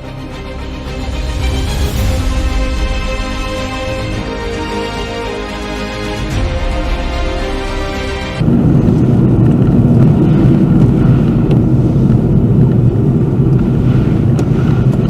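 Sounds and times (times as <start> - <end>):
car road and engine rumble: 8.4 - 15.0.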